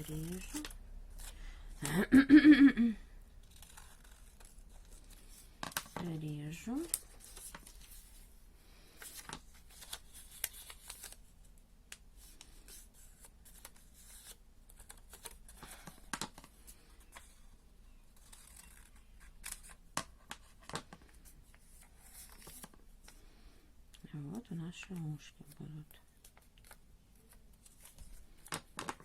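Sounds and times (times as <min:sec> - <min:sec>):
scissors snipping paper: 0:00.0 - 0:00.8.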